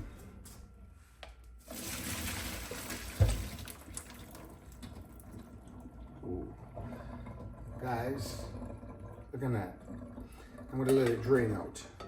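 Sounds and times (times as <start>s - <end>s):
water splashing into strainer: 1.7s - 4.9s.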